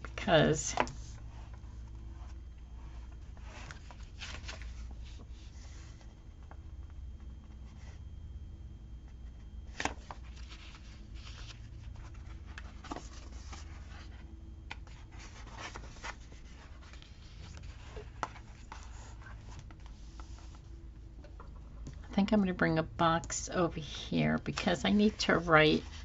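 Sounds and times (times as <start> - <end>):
paper rustling and scratching: 0.3 - 6.2, 9.7 - 20.7, 24.4 - 26.0.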